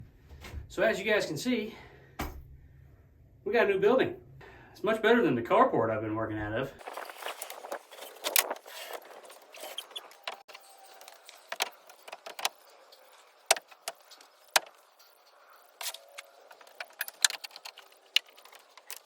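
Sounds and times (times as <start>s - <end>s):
small hard objects clicking: 10.1s - 19.0s.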